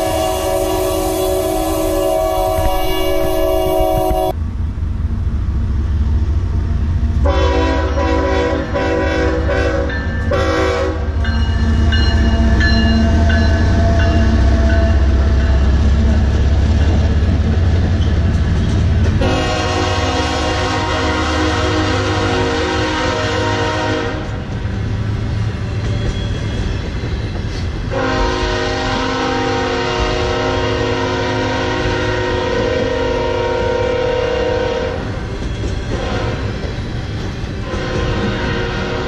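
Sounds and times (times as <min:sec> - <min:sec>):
train air horn blowing: 0:00.0 - 0:04.4, 0:07.2 - 0:11.2, 0:19.2 - 0:24.4, 0:27.9 - 0:35.2, 0:35.9 - 0:36.5, 0:37.6 - 0:39.0
diesel locomotive engine rumble: 0:00.0 - 0:39.0
freight cars rolling: 0:11.2 - 0:19.4.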